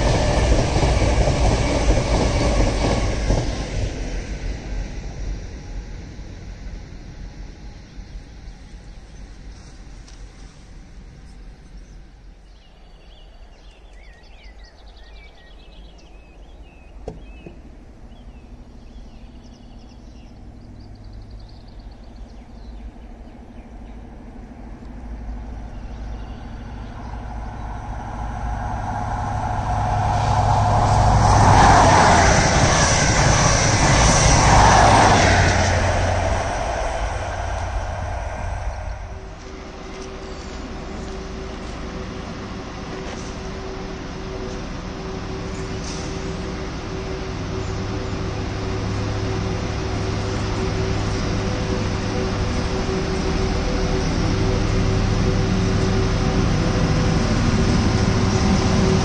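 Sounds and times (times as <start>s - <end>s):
diesel train passing: 0.0s - 59.0s
birds chirping: 11.6s - 30.9s.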